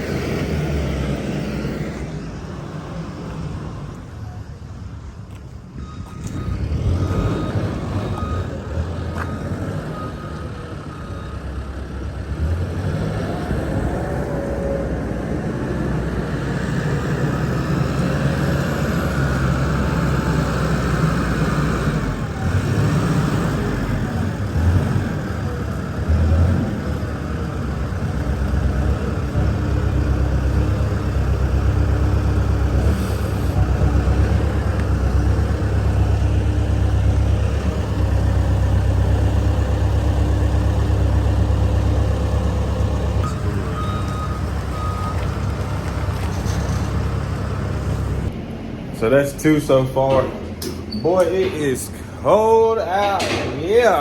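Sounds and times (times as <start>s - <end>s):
forklift engine running: 0.0s - 54.0s.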